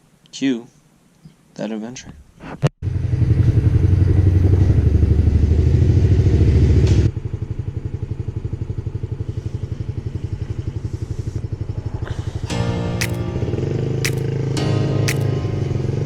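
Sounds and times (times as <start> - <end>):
pit bike engine putter: 12.5 - 14.4, 15.1 - 15.4.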